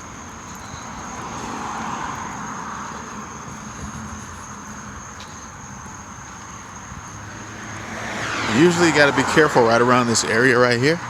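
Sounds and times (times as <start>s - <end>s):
vehicle passing by: 0.8s - 5.0s, 6.7s - 11.0s.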